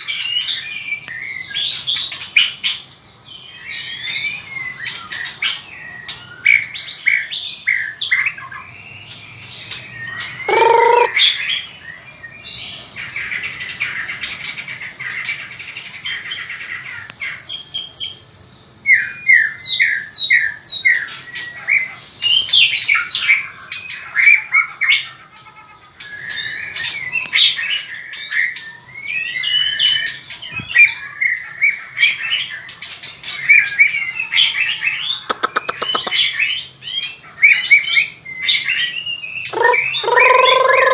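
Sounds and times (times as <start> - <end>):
songbird singing varied song: 3.3 - 21.6, 33.4 - 40.9.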